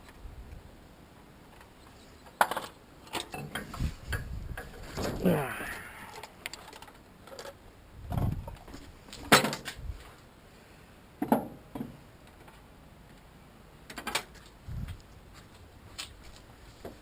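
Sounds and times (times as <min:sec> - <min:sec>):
dull low thumps: 0:08.0 - 0:08.6.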